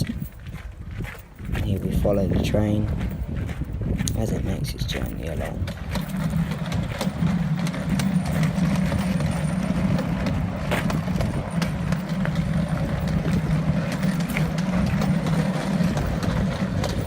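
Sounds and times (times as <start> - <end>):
miniature train engine drone: 5.0 - 17.0.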